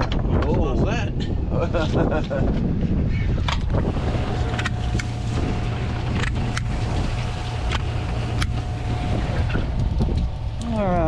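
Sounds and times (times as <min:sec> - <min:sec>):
boat motor rumbling: 0:03.5 - 0:11.0.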